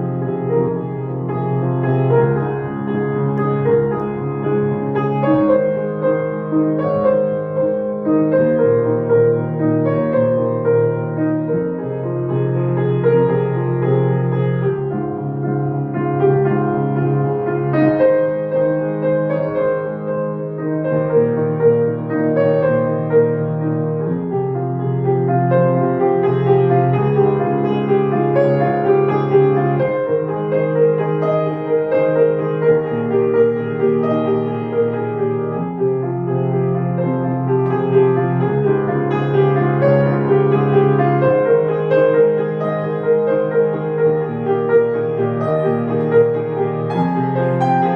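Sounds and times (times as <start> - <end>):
piano music: 0.0 - 47.9.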